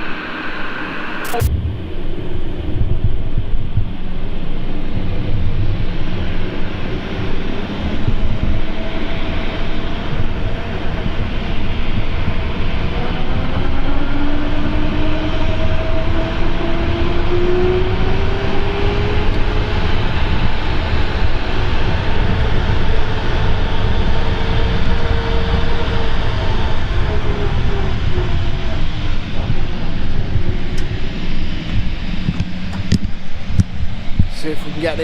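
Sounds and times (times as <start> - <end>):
engine rumble: 0.0 - 35.0
rising engine whine: 0.0 - 35.0.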